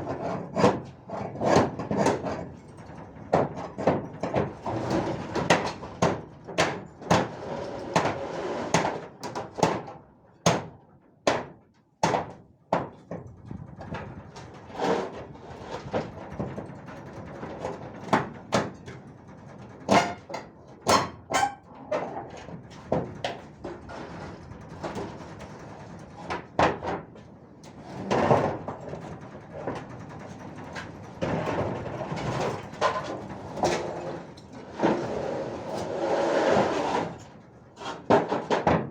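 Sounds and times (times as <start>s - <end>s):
sharp knocks and clattering: 0.2s - 7.3s, 8.0s - 14.7s.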